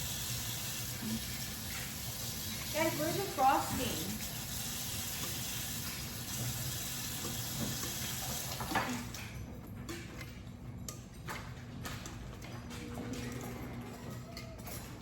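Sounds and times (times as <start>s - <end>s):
tap running into sink: 1.2s - 9.2s.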